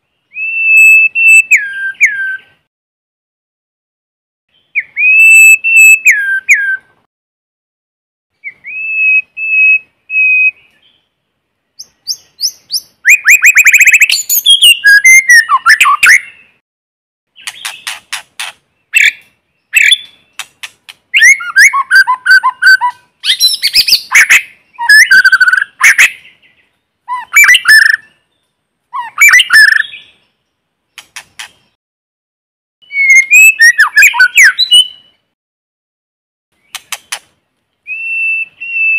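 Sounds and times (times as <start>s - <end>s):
songbird whistles and trills: 0.1s - 2.7s, 4.5s - 7.0s, 8.4s - 11.0s, 11.8s - 16.6s, 17.3s - 30.4s, 32.8s - 35.4s, 36.6s - 38.9s.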